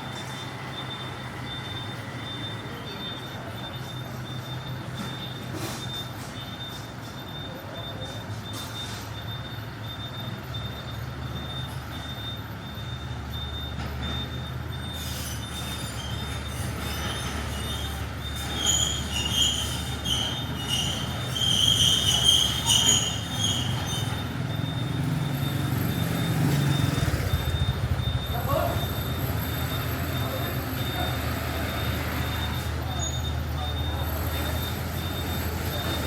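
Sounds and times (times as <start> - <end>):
high-pitched squeals: 15.0 - 27.7
vehicle engine running: 23.8 - 32.4.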